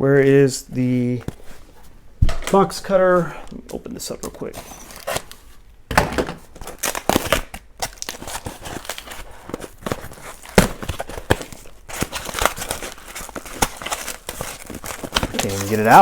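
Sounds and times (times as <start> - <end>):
packaging crinkling and tearing: 4.5 - 5.7, 6.4 - 16.0.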